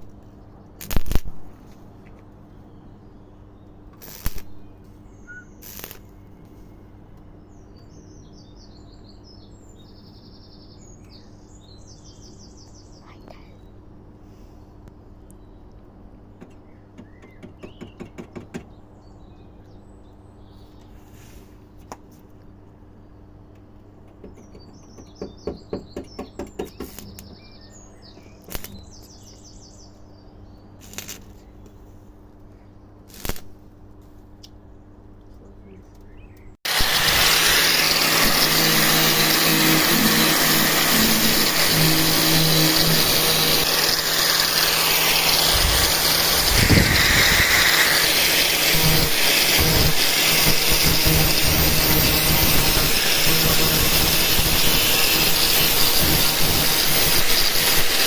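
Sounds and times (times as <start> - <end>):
loud steady hissing: 4.0 - 4.6, 5.4 - 6.1, 36.7 - 58.0
faint chirps: 4.1 - 7.4.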